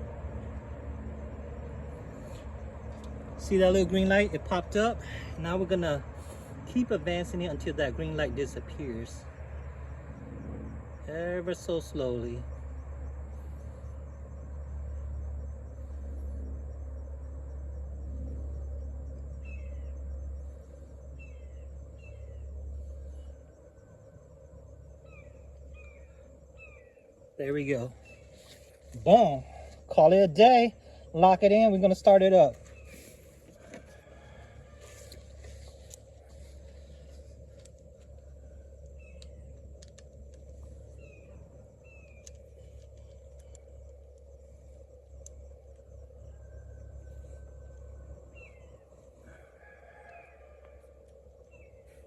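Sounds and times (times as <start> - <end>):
low steady hum: 0.0 - 52.0
bird chirping: 17.0 - 33.4, 38.3 - 49.2.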